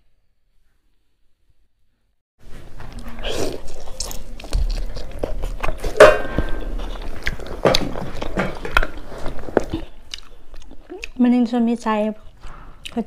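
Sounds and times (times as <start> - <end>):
person chewing: 2.8 - 11.2.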